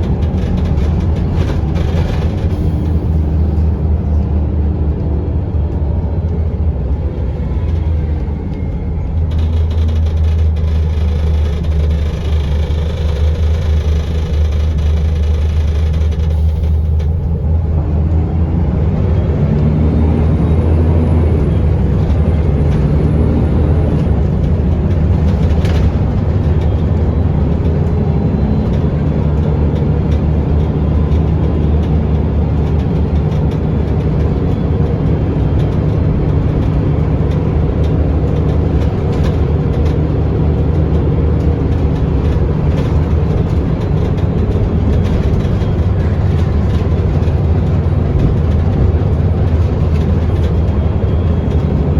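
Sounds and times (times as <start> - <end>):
bus engine droning: 0.0 - 51.9
sharp rattles: 9.2 - 17.3.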